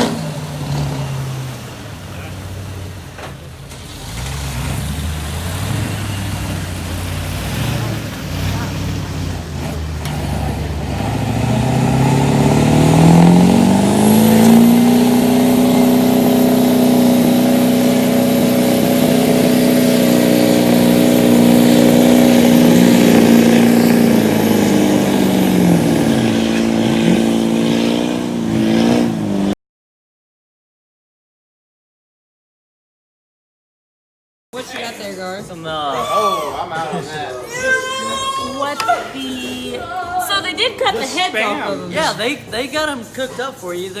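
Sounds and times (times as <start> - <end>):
truck engine revving under load: 0.0 - 29.6.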